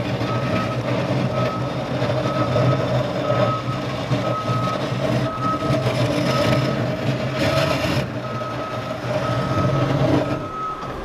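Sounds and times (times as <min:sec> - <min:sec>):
diesel engine running: 0:00.0 - 0:11.0
backup alarm beeping: 0:08.2 - 0:11.0.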